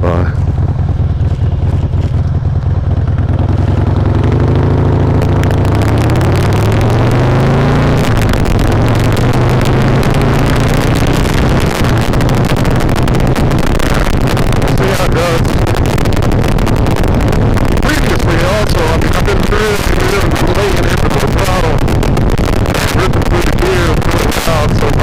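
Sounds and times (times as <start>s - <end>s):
motorcycle engine accelerating: 0.0s - 25.0s
wind buffeting microphone: 8.0s - 25.0s.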